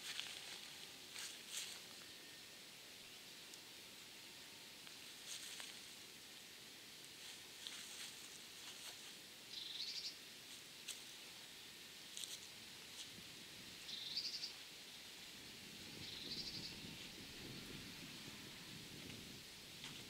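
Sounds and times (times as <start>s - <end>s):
rural background hiss: 0.0s - 20.0s
small bird trilling: 9.5s - 10.2s, 13.9s - 14.5s, 16.0s - 16.8s.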